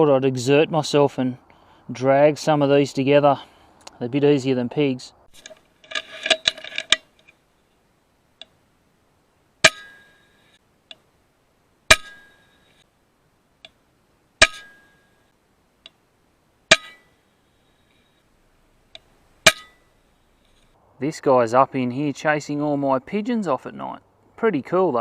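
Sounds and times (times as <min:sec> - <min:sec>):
air rifle shot with metallic ring: 0:09.6 - 0:10.3, 0:11.9 - 0:12.6, 0:14.4 - 0:15.1, 0:16.7 - 0:17.2, 0:19.4 - 0:19.9.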